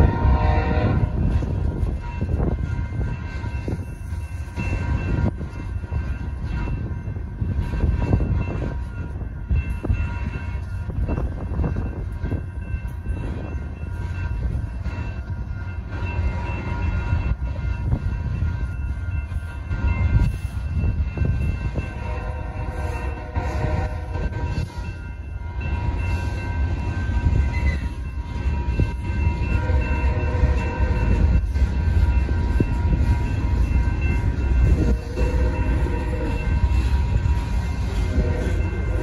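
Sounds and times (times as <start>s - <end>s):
locomotive horn: 0.0s - 1.2s, 21.8s - 24.6s, 34.6s - 39.0s
crossing bells ringing: 0.0s - 39.0s
train wheels rumbling on rails: 0.0s - 39.0s.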